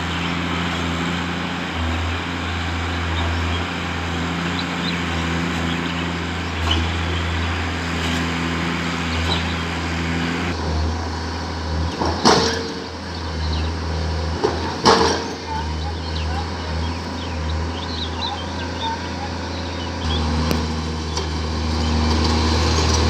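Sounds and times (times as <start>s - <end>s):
heavy vehicle engine running: 0.0s - 23.0s
loud knocks or clanks: 11.9s - 13.0s, 14.4s - 15.5s.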